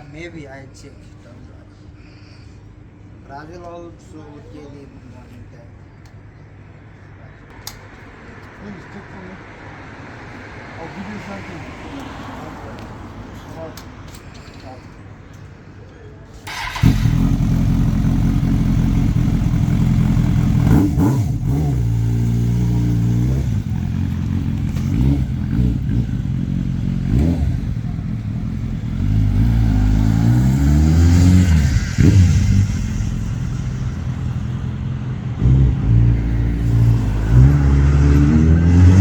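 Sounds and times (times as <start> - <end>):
motorcycle engine revving: 16.5 - 39.0.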